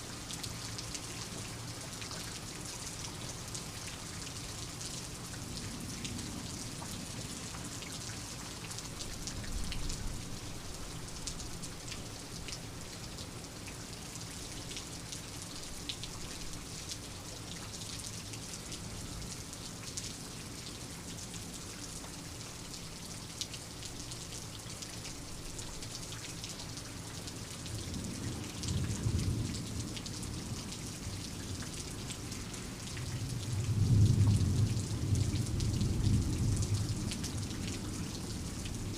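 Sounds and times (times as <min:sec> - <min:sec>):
steady rain falling: 0:00.0 - 0:38.9
low thunder rumble: 0:33.0 - 0:37.5.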